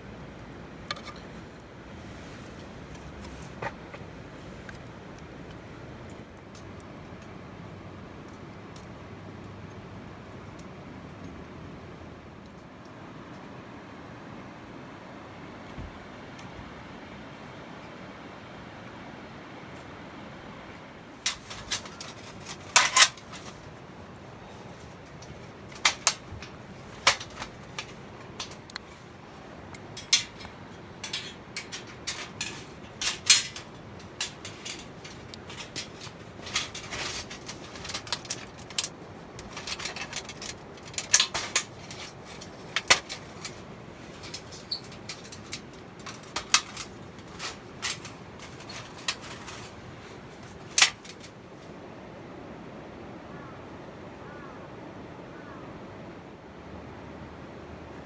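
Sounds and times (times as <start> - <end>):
steady low hiss: 0.0 - 53.2
metallic clinks and knocks: 0.9 - 1.4, 21.3 - 23.7, 24.8 - 29.1, 29.7 - 51.3.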